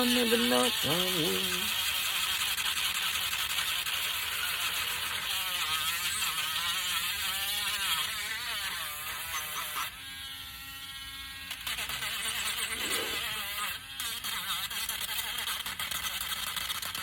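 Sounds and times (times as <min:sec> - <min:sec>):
electric sander whirring: 0:00.0 - 0:01.8.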